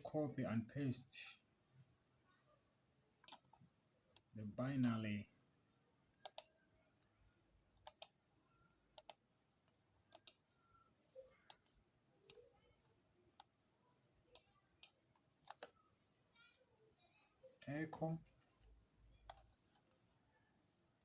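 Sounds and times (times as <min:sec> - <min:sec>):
computer mouse clicks: 0:03.2 - 0:03.6, 0:06.2 - 0:06.5, 0:07.8 - 0:08.2, 0:08.9 - 0:09.2, 0:10.1 - 0:10.5, 0:14.3 - 0:15.8, 0:18.4 - 0:20.0.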